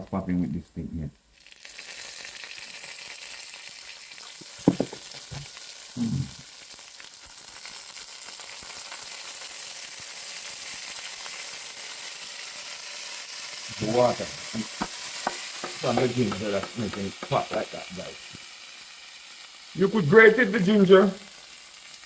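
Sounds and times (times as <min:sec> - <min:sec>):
ginger sizzling in hot oil: 0:01.2 - 0:22.0
sharp knock: 0:04.6 - 0:05.1, 0:14.6 - 0:17.8.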